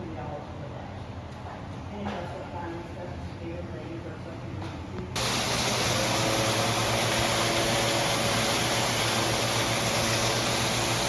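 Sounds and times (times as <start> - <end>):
fan or motor rushing with hum: 5.0 - 11.0.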